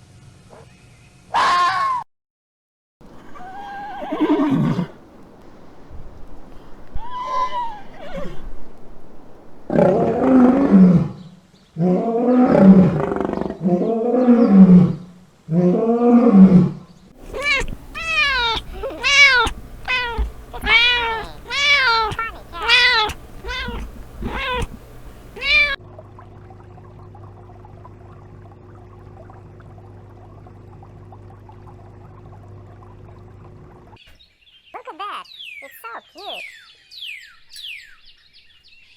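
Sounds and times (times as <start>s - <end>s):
long harsh low animal calls: 3.0s - 10.8s, 17.2s - 25.8s
short higher meow-like calls: 17.2s - 25.8s.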